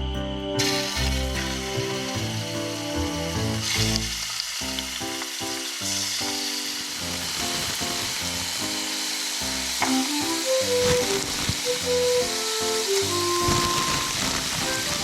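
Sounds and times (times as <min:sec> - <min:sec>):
background music with held notes: 0:00.0 - 0:15.0
food sizzling in a pan: 0:00.6 - 0:15.0.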